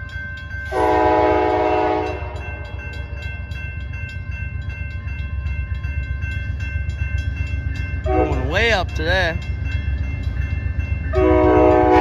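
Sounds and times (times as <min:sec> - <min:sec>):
crossing bell ringing: 0:00.0 - 0:12.0
diesel locomotive rumble: 0:00.0 - 0:12.0
locomotive horn blast: 0:00.7 - 0:02.5, 0:08.1 - 0:08.5, 0:11.1 - 0:12.0.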